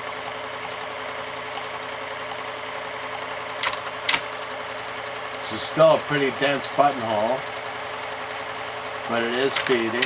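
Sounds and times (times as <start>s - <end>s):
sewing machine stitching: 3.4s - 4.5s, 9.0s - 10.0s.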